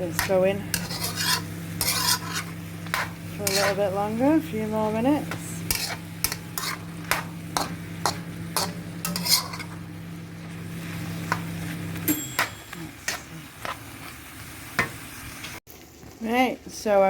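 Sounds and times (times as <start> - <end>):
utensil scraping a pan: 0.0 - 4.1, 5.3 - 9.8
chicken sizzling in a wok: 0.0 - 17.0.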